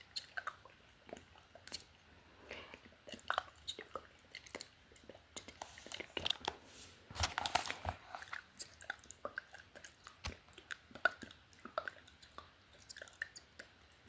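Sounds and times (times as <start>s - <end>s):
wet mouth clicks and smacks: 0.1s - 2.0s, 2.8s - 6.5s, 8.3s - 14.0s.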